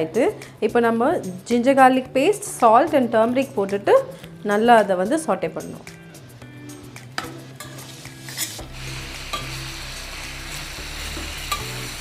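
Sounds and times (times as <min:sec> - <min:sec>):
chicken wings sizzling in a pan: 0:07.6 - 0:12.0
spoon clicking against a pan: 0:11.5 - 0:11.7.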